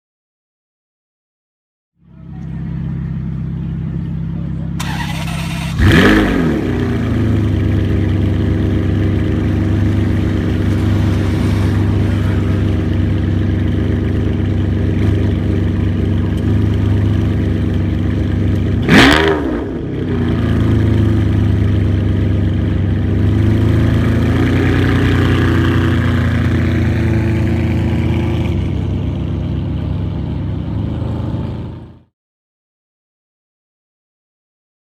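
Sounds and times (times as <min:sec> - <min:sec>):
car engine idling: 0:02.0 - 0:32.0.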